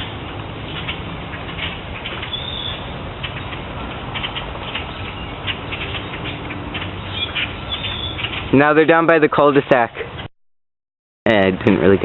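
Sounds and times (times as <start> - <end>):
birds chattering calls: 0.0 - 10.3
high bird whistles: 2.3 - 2.9, 7.0 - 8.5.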